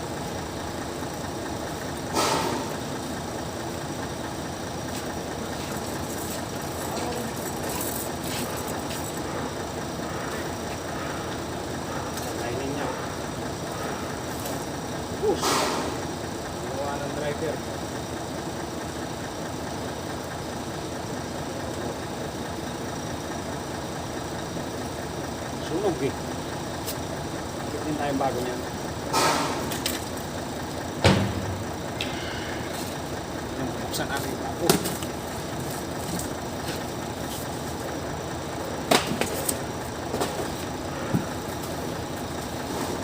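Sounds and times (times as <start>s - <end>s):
engine idling: 0.0s - 43.0s
steady background hum: 0.0s - 43.0s.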